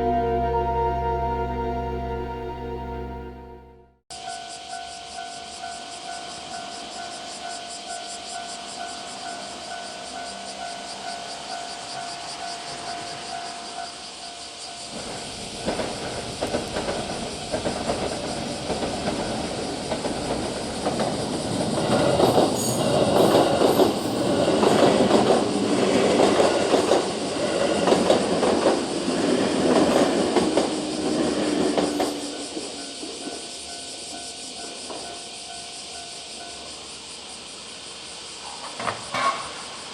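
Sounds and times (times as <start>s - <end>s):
train wheels clattering: 5.7s - 36.7s.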